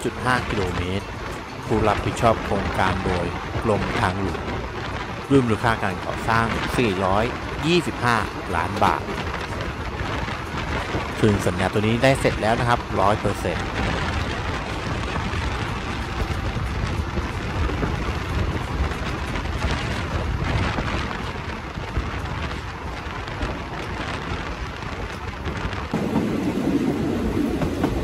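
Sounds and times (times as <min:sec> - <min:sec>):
rushing air: 0:00.0 - 0:28.0
train wheels and carriage rumbling: 0:00.0 - 0:28.0.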